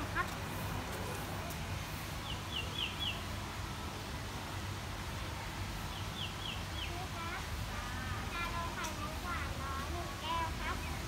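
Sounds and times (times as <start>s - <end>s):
bird chirping: 2.2s - 3.2s, 5.9s - 7.0s.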